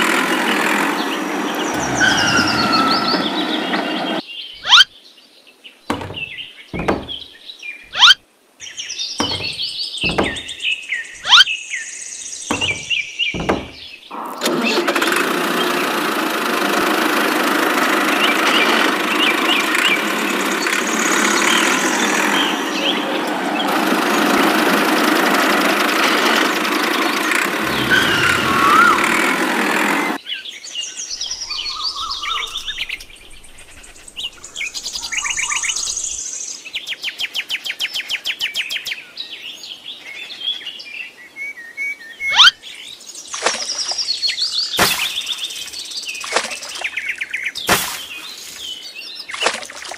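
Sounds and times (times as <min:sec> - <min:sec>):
engine-like mechanical running noise: 0:00.0 - 0:04.2, 0:12.5 - 0:30.2
birds chirping: 0:00.0 - 0:49.9
sharp whistled bird call: 0:04.6 - 0:04.9, 0:07.9 - 0:08.2, 0:31.1 - 0:33.5, 0:41.4 - 0:42.6.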